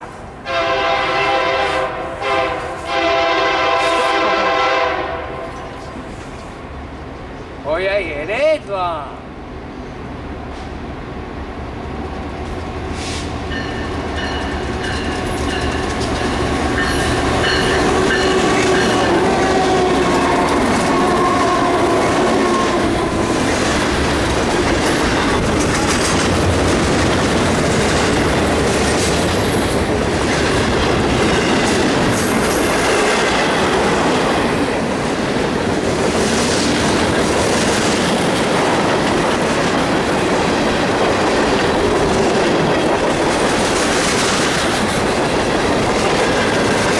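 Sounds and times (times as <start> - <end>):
diesel locomotives passing: 0.0 - 46.9
freight cars rolling past: 9.2 - 46.9
wheels clacking over rail joints: 12.0 - 46.9.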